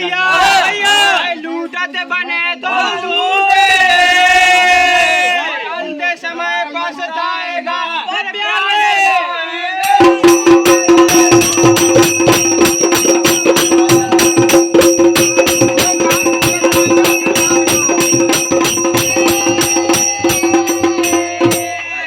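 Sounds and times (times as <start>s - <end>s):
jingling metal: 9.8s - 21.8s
fast dense percussion: 9.8s - 22.0s
steady held tone: 9.8s - 22.0s.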